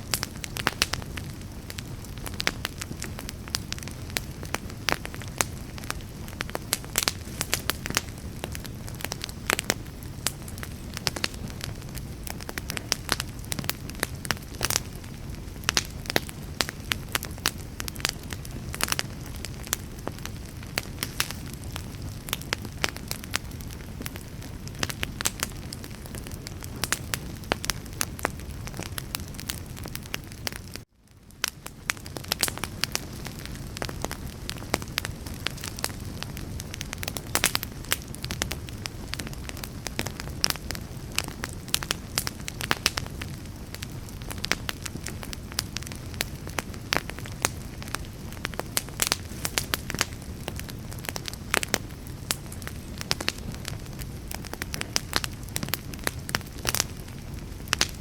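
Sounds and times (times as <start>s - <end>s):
wood crackling and popping: 0.0s - 58.0s
wood fire hissing: 0.0s - 58.0s.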